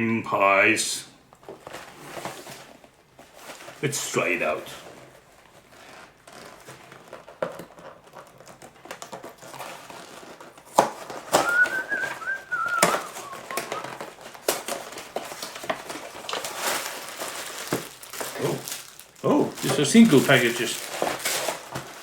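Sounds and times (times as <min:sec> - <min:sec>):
packaging crackling: 0:04.6 - 0:22.0.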